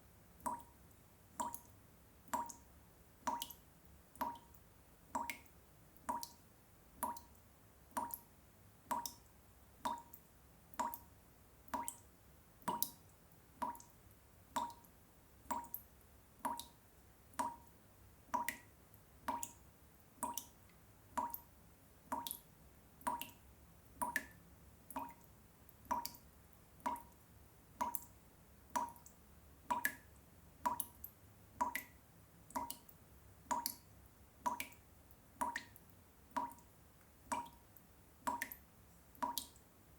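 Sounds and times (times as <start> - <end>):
water drops plinking into water: 0.4 - 1.7, 2.3 - 2.6, 3.3 - 4.6, 5.2 - 6.4, 7.0 - 8.3, 8.9 - 11.1, 11.7 - 13.9, 14.5 - 14.9, 15.5 - 19.6, 20.2 - 20.6, 21.2 - 21.5, 22.1 - 23.4, 24.0 - 26.2, 26.8 - 27.2, 27.8 - 34.8, 35.4 - 36.7, 37.3 - 37.6, 38.3 - 39.6.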